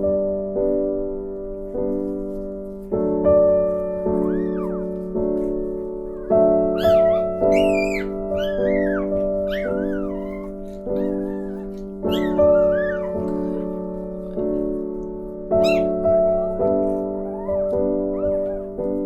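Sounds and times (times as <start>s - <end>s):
piano music: 0.0s - 19.0s
puppy squeaky cries: 4.0s - 5.1s, 6.1s - 13.8s, 15.6s - 18.8s.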